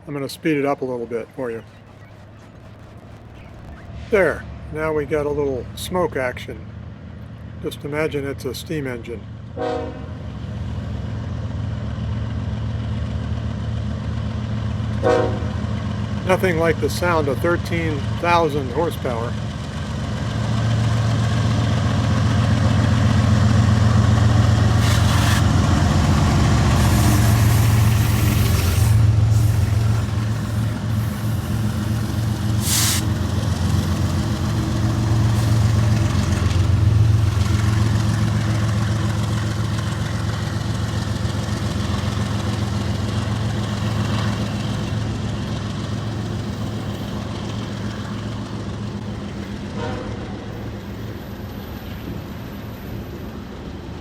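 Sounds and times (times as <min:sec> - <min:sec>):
diesel locomotive engine drone: 0:00.0 - 0:54.0
short hissing bursts: 0:24.8 - 0:25.5, 0:26.8 - 0:33.2.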